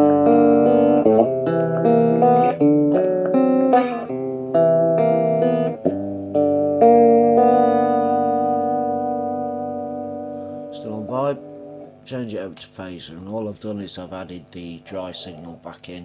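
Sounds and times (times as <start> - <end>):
guitar chords through phaser: 0.0 - 12.1.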